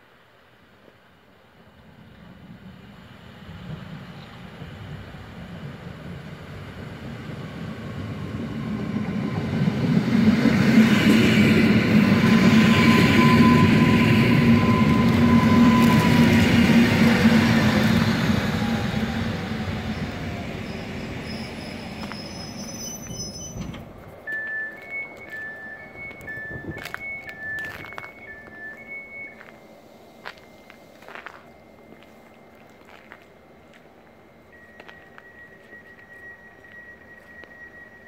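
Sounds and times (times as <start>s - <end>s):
train wheels rolling on rail: 0.8s - 38.0s
thin steady squeal: 11.6s - 38.0s.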